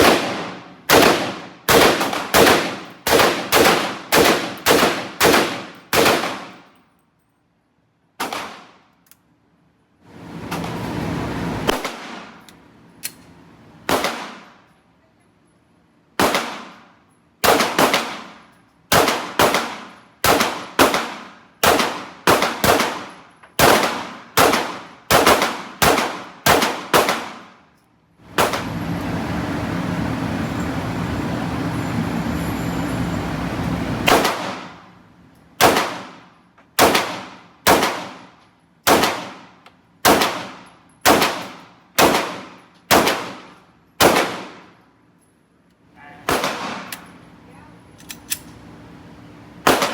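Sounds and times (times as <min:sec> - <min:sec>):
gunshots ringing: 0:00.0 - 0:06.6, 0:17.4 - 0:27.5, 0:34.1 - 0:34.8, 0:36.8 - 0:38.2, 0:38.9 - 0:39.4, 0:46.2 - 0:47.0.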